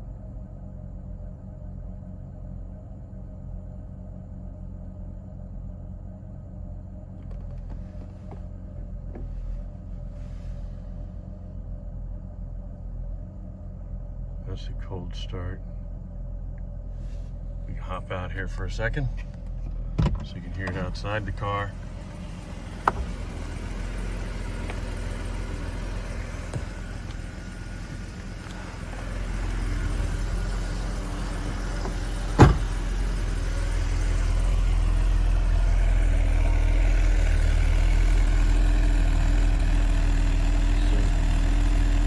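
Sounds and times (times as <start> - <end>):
car engine idling: 0.0 - 42.0
sharp thump: 22.6 - 33.0.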